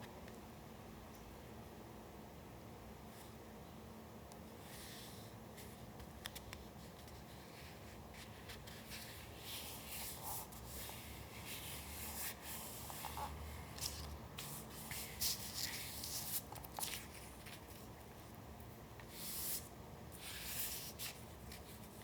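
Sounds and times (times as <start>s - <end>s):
paper rustling and rubbing: 4.8s - 18.4s, 19.0s - 22.0s.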